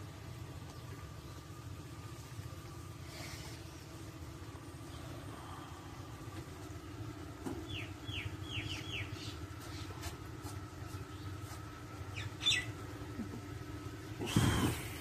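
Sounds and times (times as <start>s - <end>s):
birds chirping: 0.0s - 15.0s
low mechanical hum: 0.0s - 15.0s.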